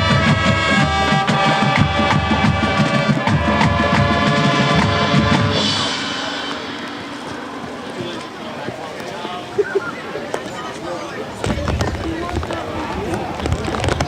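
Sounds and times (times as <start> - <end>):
brass sustained chords: 0.0 - 8.6
steady drum beat: 0.0 - 8.8.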